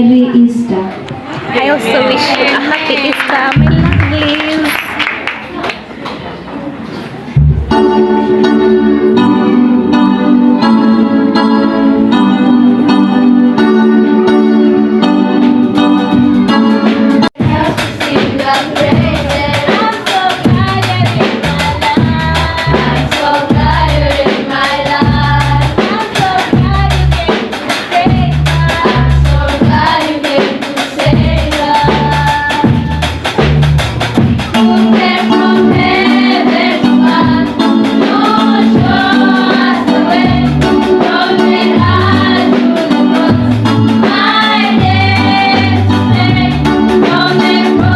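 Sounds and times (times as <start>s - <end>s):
drums and bass beat: 3.6s - 4.4s, 7.4s - 7.8s, 15.5s - 47.9s
keyboard: 6.7s - 47.9s
group singing gospel song: 16.4s - 33.1s, 34.5s - 47.9s.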